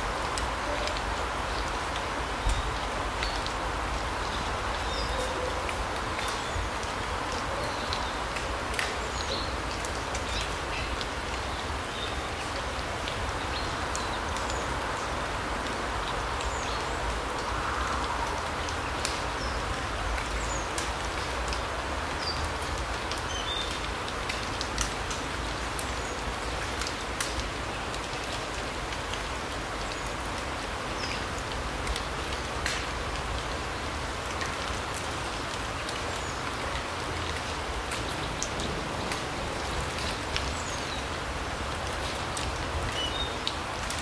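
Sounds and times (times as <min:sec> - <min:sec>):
light ticks: 0:05.7 - 0:11.4, 0:15.6 - 0:25.9, 0:26.6 - 0:33.5
steady forest hiss: 0:06.0 - 0:44.0.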